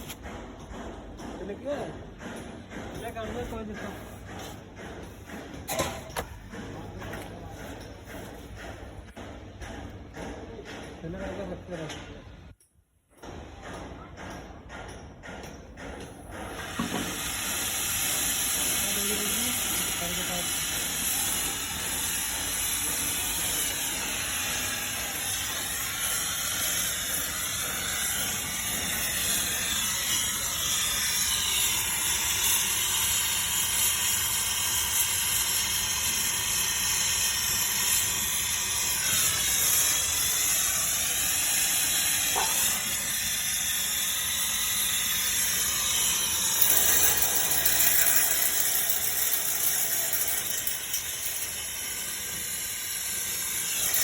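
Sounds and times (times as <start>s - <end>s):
torch flame hissing: 16.7s - 31.4s.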